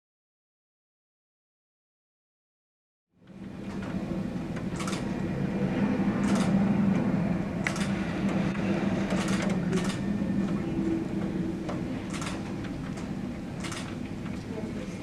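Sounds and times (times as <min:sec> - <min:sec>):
low mechanical hum: 0:03.2 - 0:15.0.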